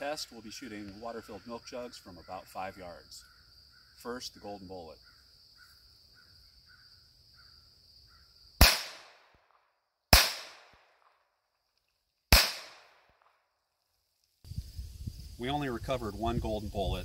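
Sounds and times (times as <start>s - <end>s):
pistol shots: 8.6s - 9.5s, 10.1s - 11.1s, 12.3s - 13.2s.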